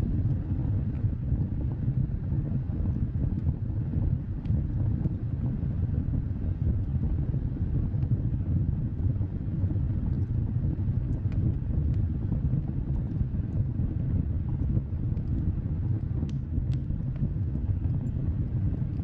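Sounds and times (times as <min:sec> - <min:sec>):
wood fire burning: 0:00.0 - 0:19.0
faint crackling pops: 0:11.1 - 0:12.2, 0:14.4 - 0:19.0.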